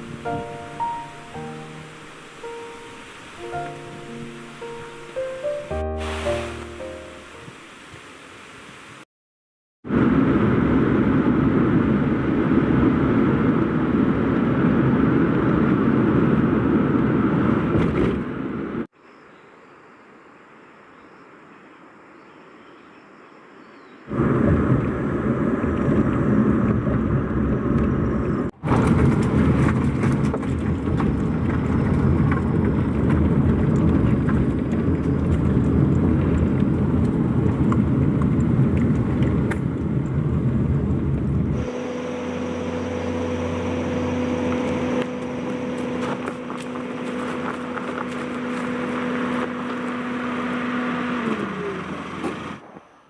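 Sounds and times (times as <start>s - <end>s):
vehicle engine and road noise: 0.0s - 6.9s, 9.9s - 18.9s, 24.1s - 53.0s
low hum: 24.1s - 53.0s.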